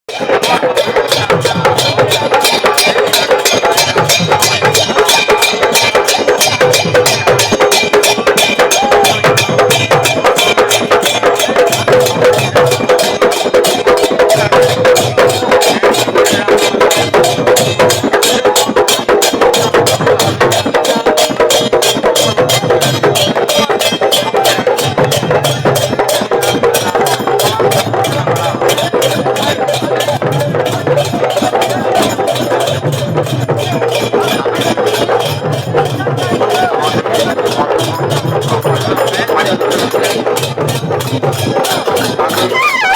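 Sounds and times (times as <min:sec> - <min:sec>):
hand cymbals: 0:00.1 - 0:42.9
hand drum beat: 0:00.1 - 0:42.9
held instrumental tone: 0:41.9 - 0:42.9.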